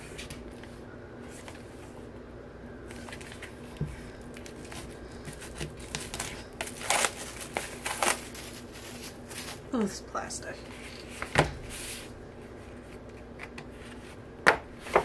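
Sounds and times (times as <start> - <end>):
faint steady hum: 0.0 - 15.0
packaging rustling and crinkling: 2.9 - 9.8.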